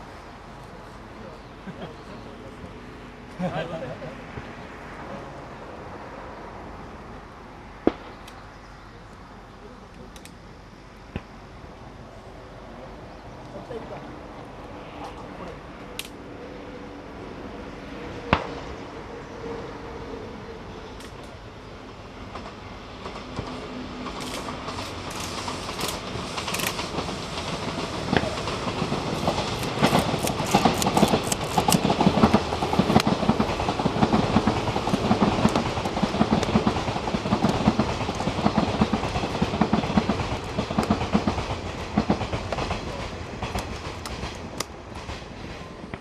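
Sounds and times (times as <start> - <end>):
train wheels clattering on rails: 21.0 - 46.0.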